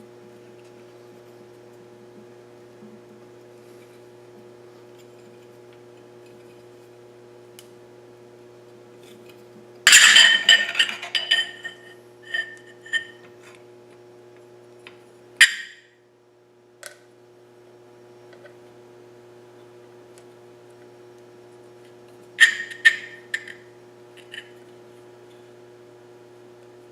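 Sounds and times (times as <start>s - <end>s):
steady electrical hum: 0.0s - 26.9s
metal objects clattering: 9.9s - 13.2s.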